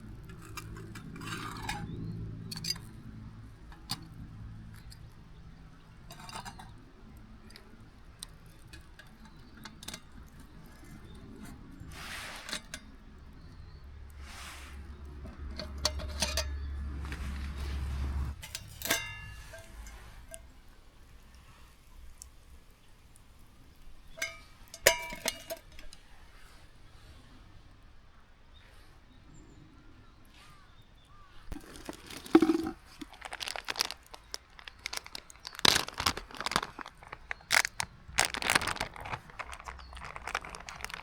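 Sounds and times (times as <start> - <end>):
cookware clinking and rustling: 15.4 - 17.0, 18.4 - 20.4, 24.1 - 26.0, 31.6 - 41.0.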